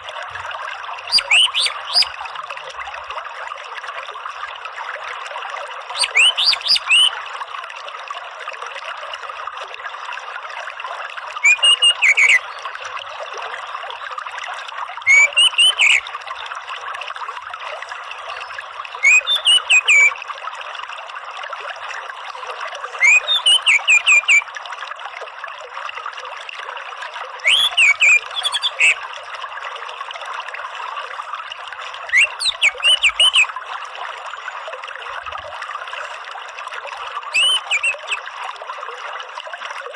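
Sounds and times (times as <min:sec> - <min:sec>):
trickling water: 0:00.0 - 0:39.9
bird singing rising notes: 0:01.1 - 0:02.1, 0:06.0 - 0:07.1, 0:11.4 - 0:12.4, 0:15.1 - 0:16.0, 0:18.3 - 0:20.2, 0:23.0 - 0:24.4, 0:27.4 - 0:29.0, 0:32.1 - 0:33.5, 0:37.3 - 0:38.2.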